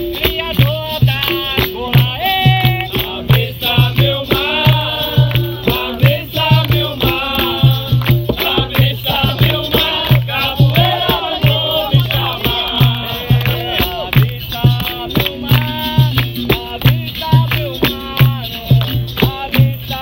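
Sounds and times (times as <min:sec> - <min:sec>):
low drum beat: 0:00.0 - 0:20.0
shaken rattle: 0:00.0 - 0:20.0
voices singing: 0:00.0 - 0:20.0.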